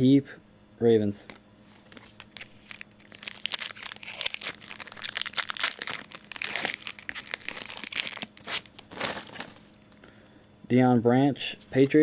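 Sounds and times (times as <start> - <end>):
plastic wrapper crinkling and tearing: 1.9 - 9.9.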